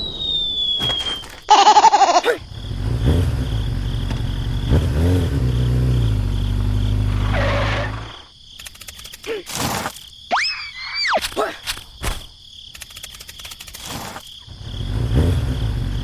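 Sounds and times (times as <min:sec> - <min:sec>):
loud falling pitched sound: 0:00.0 - 0:01.8
engine rumbling and revving: 0:02.4 - 0:08.3, 0:14.5 - 0:16.0.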